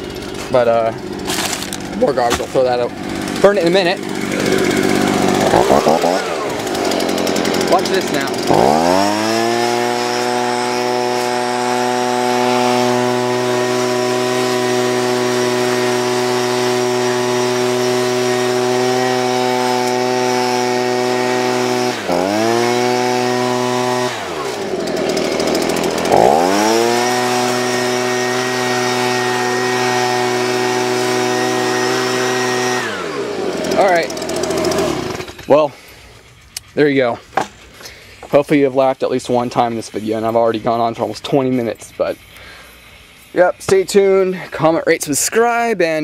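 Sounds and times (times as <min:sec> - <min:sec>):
leaf blower running: 0:00.0 - 0:44.8.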